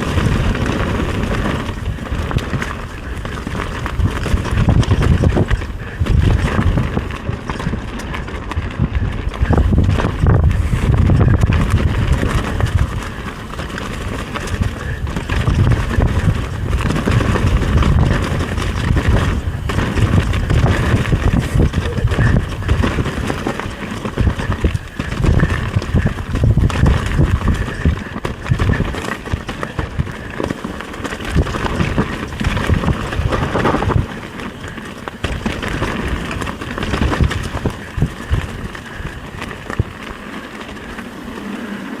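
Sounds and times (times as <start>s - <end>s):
bike rattling: 0.0s - 42.0s
wind buffeting microphone: 0.0s - 42.0s
tyres crunching over branches: 29.0s - 38.7s.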